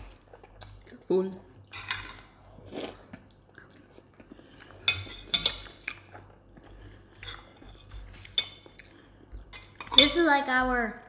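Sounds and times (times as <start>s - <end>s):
quiet chewing: 2.2s - 9.8s
forks clinking on plates: 9.6s - 10.2s.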